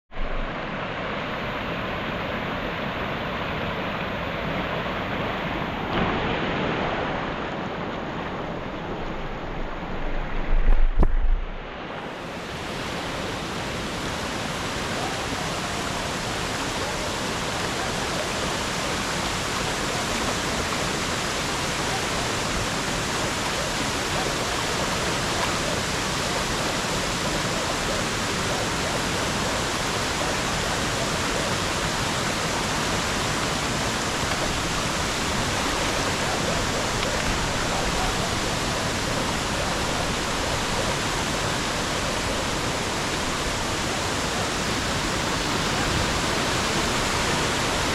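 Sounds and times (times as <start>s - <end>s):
waterfall rushing: 0.1s - 47.9s
brief low rumble: 9.4s - 11.7s.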